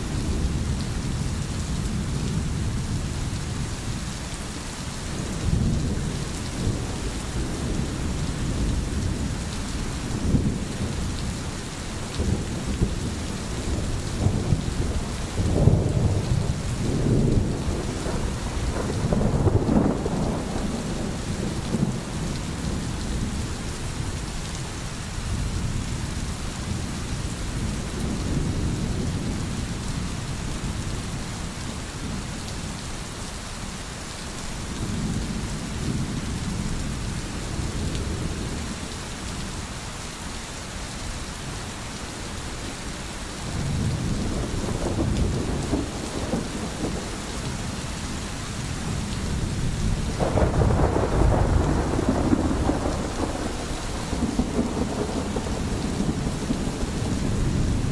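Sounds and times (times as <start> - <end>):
heavy rain: 0.0 - 57.9
rolling thunder rumbling: 5.2 - 24.2, 43.5 - 57.9.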